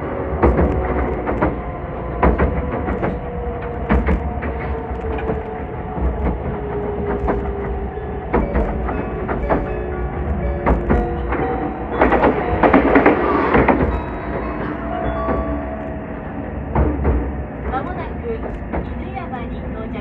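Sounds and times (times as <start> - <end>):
train motor tone: 0.0 - 20.0
train rumble inside car: 0.0 - 20.0
wheels clacking over rail joints: 0.0 - 20.0.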